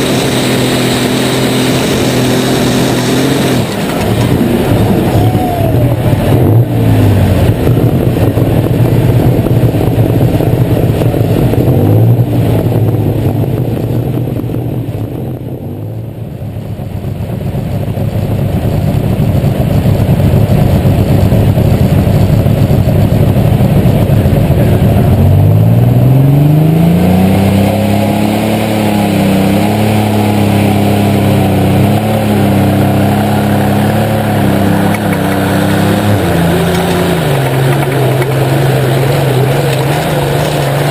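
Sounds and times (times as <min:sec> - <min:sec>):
tractor engine revving: 0:00.0 - 0:40.9.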